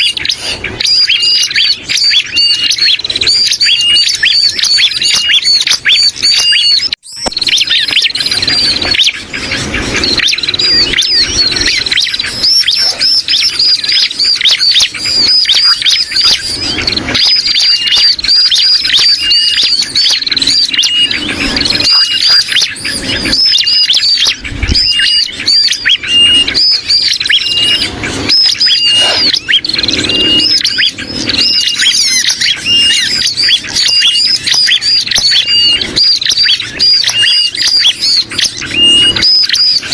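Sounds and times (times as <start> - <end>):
rapid high bird chirping: 0.0 - 39.9.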